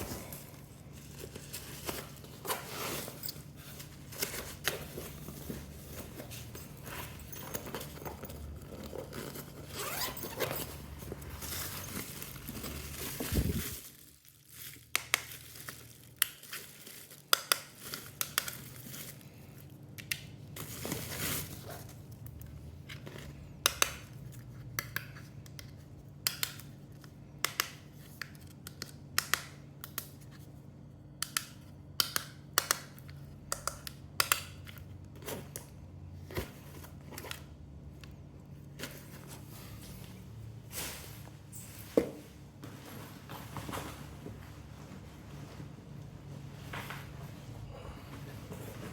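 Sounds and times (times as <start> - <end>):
packaging rustling: 0.0 - 19.3.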